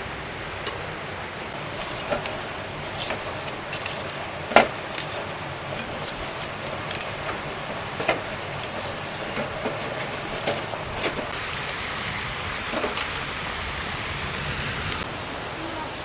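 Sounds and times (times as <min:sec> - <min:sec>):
mountain stream rushing: 0:00.0 - 0:16.0
utensils knocking cookware: 0:01.6 - 0:11.3.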